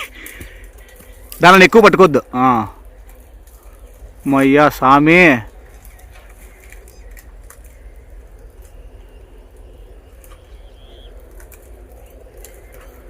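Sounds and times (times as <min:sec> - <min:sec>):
steady low rumble: 0:00.0 - 0:13.0
faint bird calls: 0:05.5 - 0:13.0.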